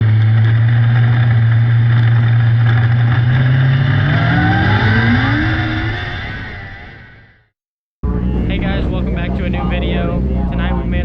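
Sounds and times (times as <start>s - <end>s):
racing car engine revving: 0.0s - 11.0s.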